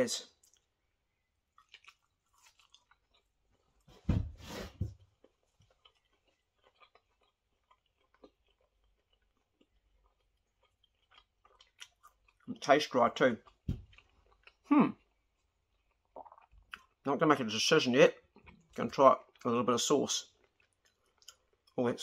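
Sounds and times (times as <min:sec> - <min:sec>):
person chewing: 0:00.3 - 0:03.9, 0:05.0 - 0:17.0, 0:18.2 - 0:19.5, 0:20.2 - 0:21.8.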